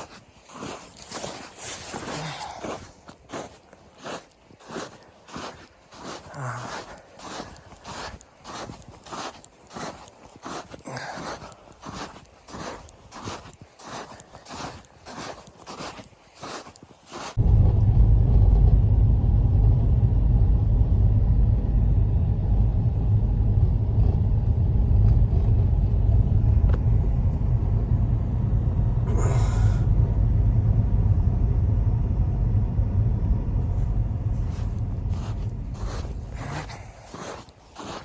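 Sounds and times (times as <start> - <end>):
strong wind buffeting microphone: 17.4 - 38.0.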